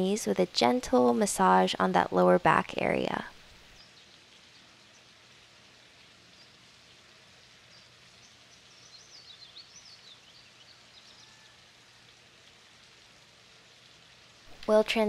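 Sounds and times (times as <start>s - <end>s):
faint outdoor hiss: 0.0s - 15.0s
small bird chirping: 7.7s - 11.4s.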